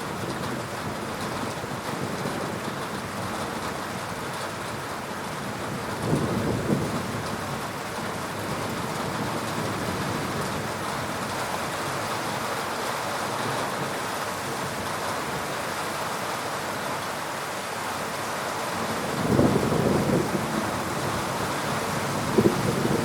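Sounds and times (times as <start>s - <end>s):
heavy rain falling: 0.0s - 23.0s
low thunder rumble: 18.8s - 23.0s.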